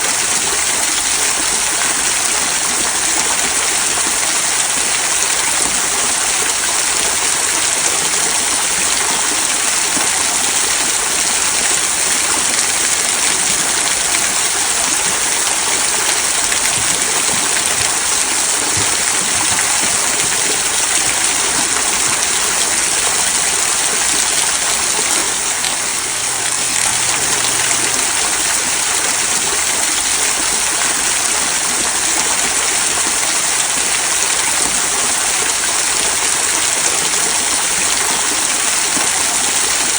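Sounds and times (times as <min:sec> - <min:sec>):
waterfall splashing over rocks: 0:00.0 - 0:39.9.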